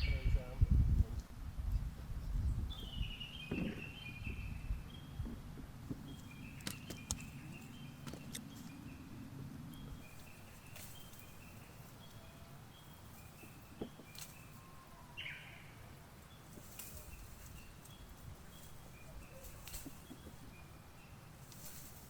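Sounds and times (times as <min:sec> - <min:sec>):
small birds calling: 0:00.0 - 0:00.7, 0:01.6 - 0:22.0
sharp clicks or rustles: 0:06.2 - 0:07.4.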